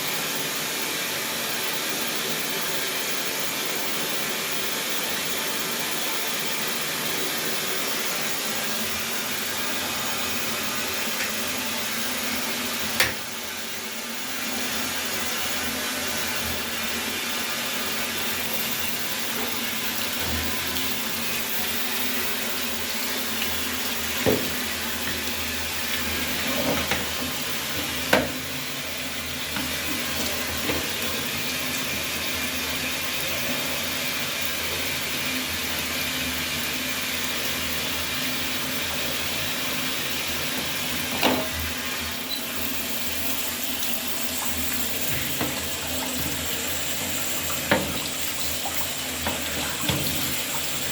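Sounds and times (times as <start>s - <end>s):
water rushing through pipes: 7.2s - 50.9s.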